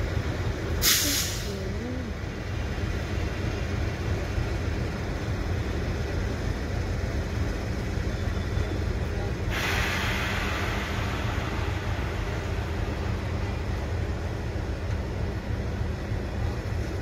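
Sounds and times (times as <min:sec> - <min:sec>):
train wheels rumbling on track: 0:00.0 - 0:17.0
hiss of escaping air: 0:00.8 - 0:01.6, 0:09.5 - 0:13.1.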